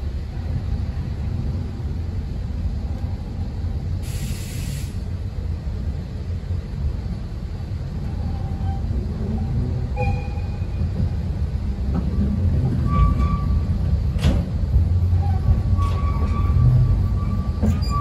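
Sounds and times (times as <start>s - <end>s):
train running gear rumbling: 0.0s - 18.0s
air hiss: 4.0s - 5.2s
faint wheel squeals: 12.8s - 13.8s, 15.1s - 18.0s.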